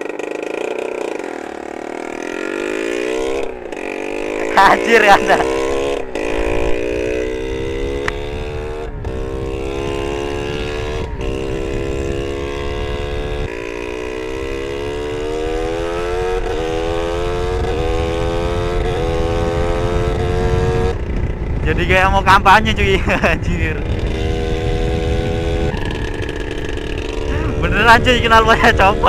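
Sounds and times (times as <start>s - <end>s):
motorcycle engine at speed: 0.0s - 29.0s
wind rush on microphone: 5.6s - 29.0s.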